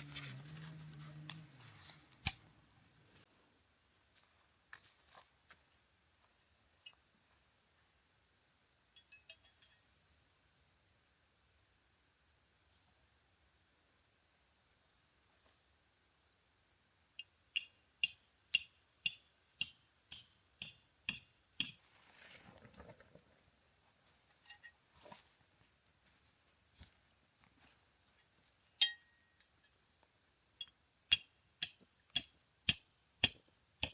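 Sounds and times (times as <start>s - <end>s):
brief rustle: 21.8s - 23.5s.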